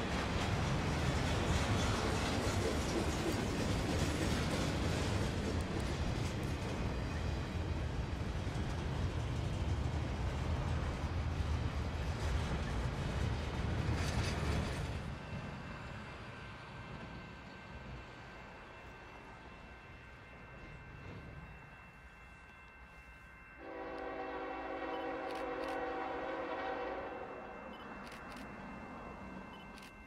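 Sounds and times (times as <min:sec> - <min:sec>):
train wheels rumbling on rail: 0:00.0 - 0:22.8, 0:23.4 - 0:30.0.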